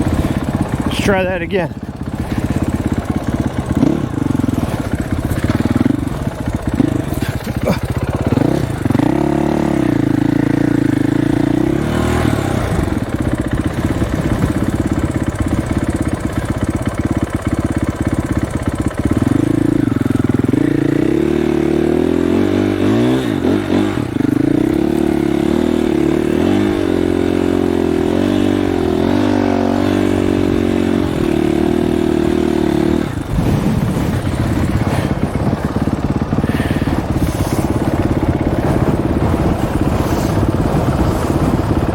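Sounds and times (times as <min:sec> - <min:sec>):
dirt bike engine revving: 0:00.0 - 0:41.9
wind rumbling on microphone: 0:33.0 - 0:41.9.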